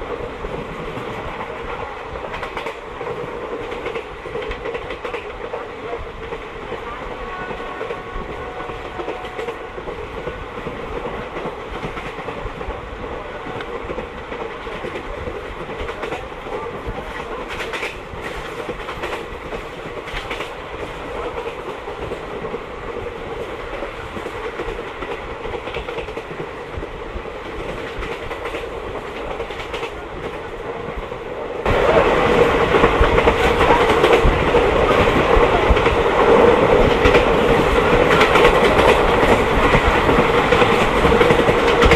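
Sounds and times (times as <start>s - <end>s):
train wheels clattering over rail joints: 32.6s - 41.9s.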